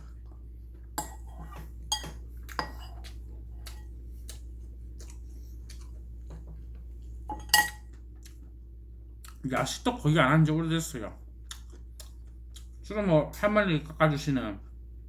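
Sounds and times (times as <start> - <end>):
utensils clinking against dishes: 1.0 - 3.0, 7.3 - 7.9.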